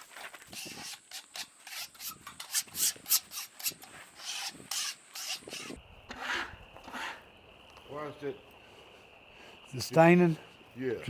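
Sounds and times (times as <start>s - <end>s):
rasping scraping on wood: 0.5s - 7.2s.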